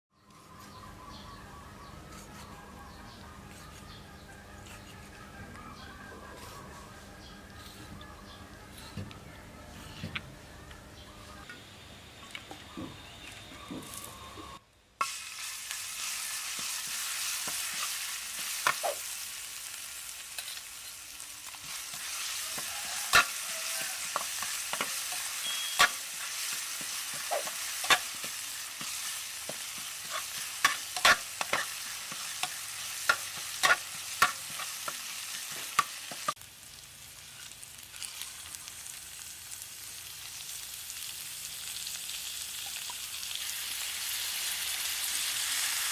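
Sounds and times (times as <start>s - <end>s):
squid sizzling with pops: 15.0s - 45.9s.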